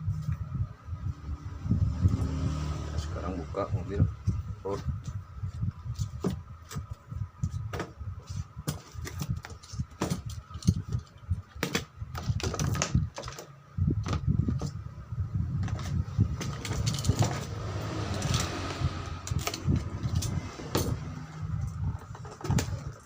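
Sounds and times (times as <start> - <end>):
cardboard and plastic packaging handled: 4.7 - 14.8.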